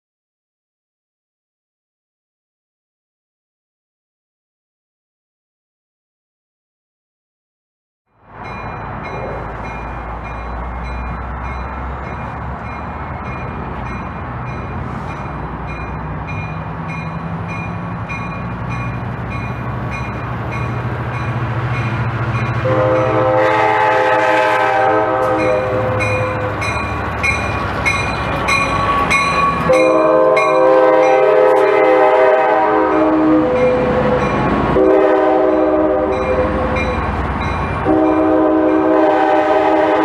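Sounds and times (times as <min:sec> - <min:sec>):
train engine rumble: 0:08.1 - 0:40.0
train horn: 0:22.6 - 0:26.8, 0:28.5 - 0:37.0, 0:37.8 - 0:40.0.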